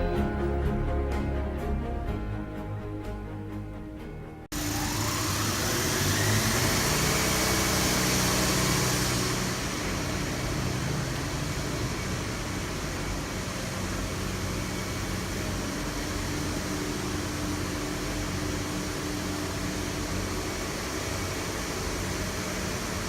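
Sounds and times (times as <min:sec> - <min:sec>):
machinery humming: 0:00.0 - 0:23.0
whirring air noise: 0:04.6 - 0:23.0.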